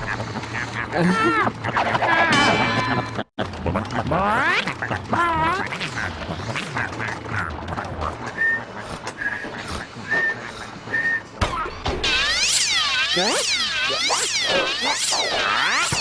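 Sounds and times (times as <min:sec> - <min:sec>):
wavering cartoon animal call: 0:11.6 - 0:16.0
warbling swooping tones: 0:12.0 - 0:16.0.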